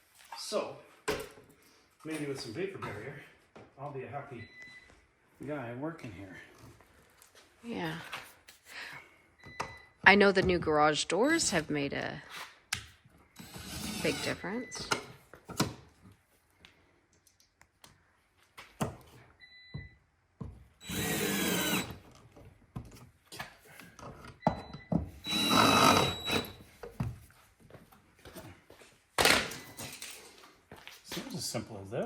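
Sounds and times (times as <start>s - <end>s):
power drill bursts: 13.4s - 14.9s, 20.8s - 22.0s, 25.2s - 26.6s.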